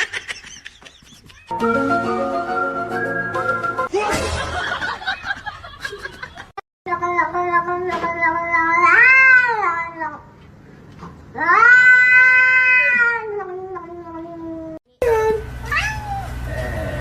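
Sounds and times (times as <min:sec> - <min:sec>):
cat yowling: 0:11.4 - 0:14.8.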